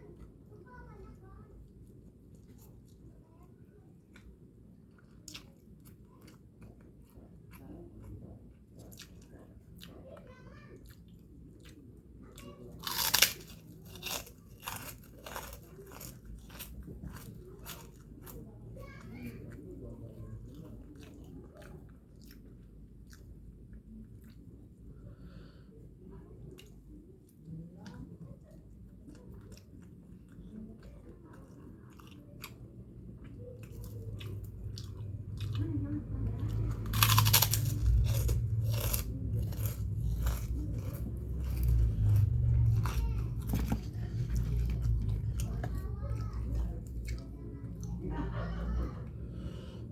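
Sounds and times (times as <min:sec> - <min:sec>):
crunchy crackers being chewed: 0:01.8 - 0:24.9, 0:26.2 - 0:48.3
crisp crunches: 0:12.8 - 0:17.9, 0:36.8 - 0:45.6.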